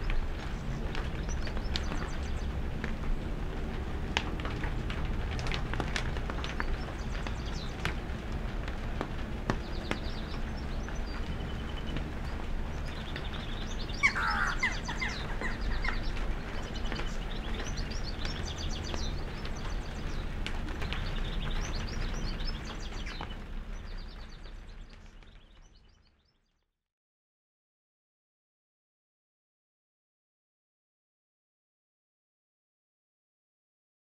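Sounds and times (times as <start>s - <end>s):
birds chirping: 0.0s - 3.2s, 5.3s - 8.3s, 9.5s - 26.4s
low steady rumble: 0.0s - 26.0s
bird call of falling notes: 14.0s - 16.1s.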